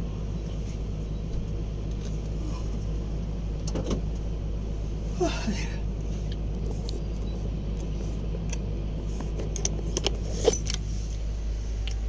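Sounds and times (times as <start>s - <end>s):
diesel engine running: 0.0s - 12.0s
metallic clicks and jingles: 6.6s - 7.0s, 9.4s - 10.8s.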